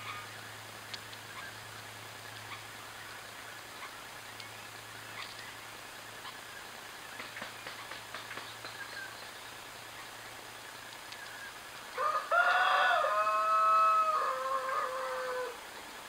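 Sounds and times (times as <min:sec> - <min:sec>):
bird long call: 0:11.3 - 0:15.8.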